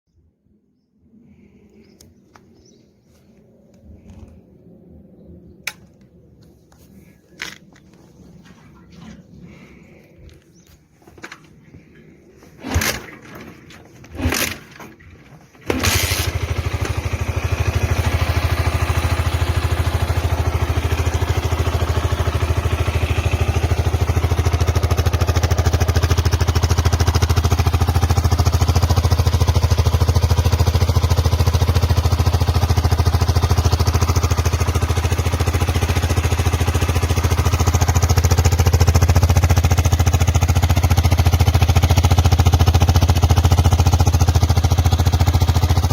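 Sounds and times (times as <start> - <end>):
motorcycle engine starting and idling: 10.9 - 45.9.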